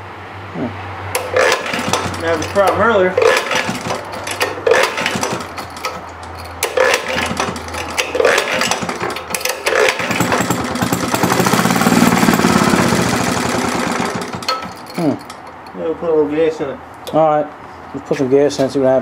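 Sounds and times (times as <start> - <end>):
engine running unevenly with pops: 1.1 - 15.7.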